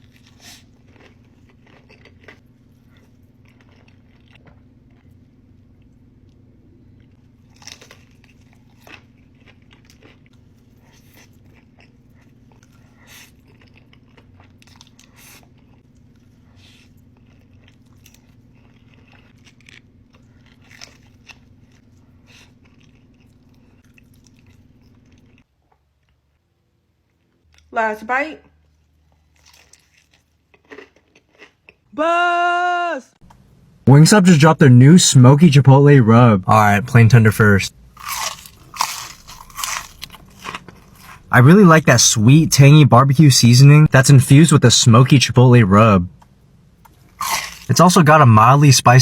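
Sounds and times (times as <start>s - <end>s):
food crunching: 0.0s - 6.4s, 7.0s - 26.3s, 28.6s - 31.9s, 37.9s - 41.4s, 46.2s - 48.6s
steady low hum: 0.0s - 25.4s, 33.2s - 49.0s
person chewing food: 0.0s - 26.4s, 28.6s - 31.9s, 37.9s - 41.3s, 46.2s - 47.8s.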